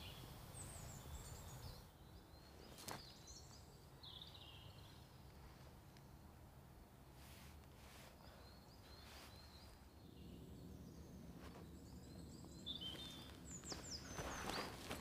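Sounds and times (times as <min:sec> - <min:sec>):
low steady background hum: 0:00.0 - 0:15.0
faint bird chirps: 0:08.0 - 0:15.0.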